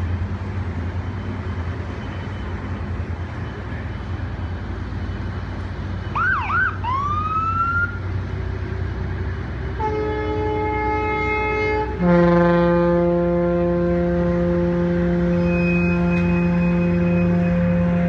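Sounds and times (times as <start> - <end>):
siren whooping: 6.1 - 8.0
boat horns: 9.6 - 18.0.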